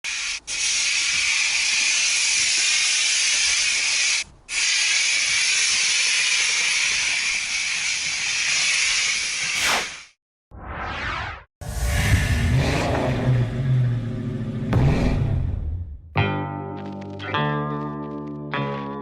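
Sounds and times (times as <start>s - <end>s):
pressure washer spraying: 0.1s - 10.1s.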